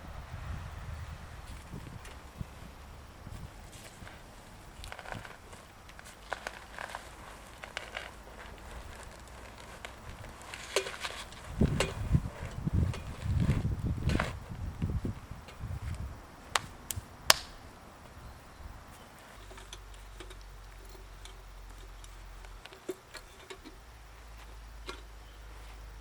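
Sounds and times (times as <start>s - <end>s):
sharp clicks: 16.5s - 17.6s.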